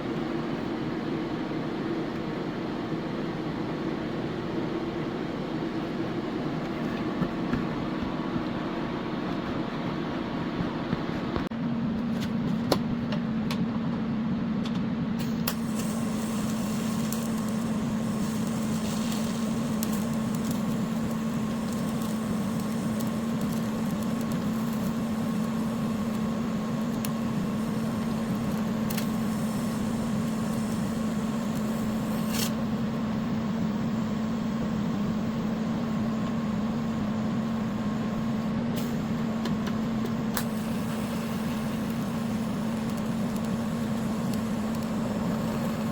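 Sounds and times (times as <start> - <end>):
welder electrical hum with hiss: 0.0 - 45.9
sharp welding clicks: 15.3 - 29.2, 41.7 - 45.6.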